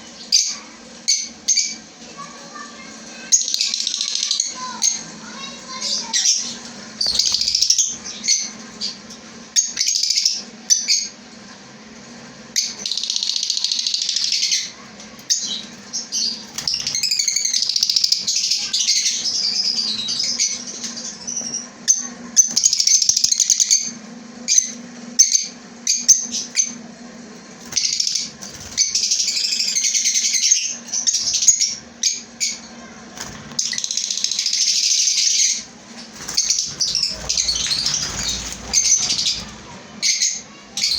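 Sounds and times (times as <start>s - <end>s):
lovebirds calling shrilly: 4.5s - 9.0s, 12.6s - 21.7s, 27.6s - 40.9s.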